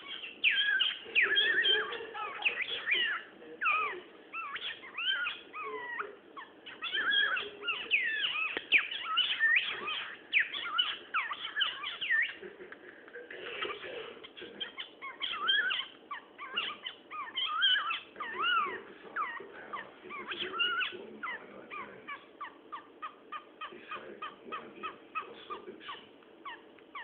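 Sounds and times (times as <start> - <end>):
cockatiel whistling and chirping: 0.0 - 12.4, 13.6 - 27.0.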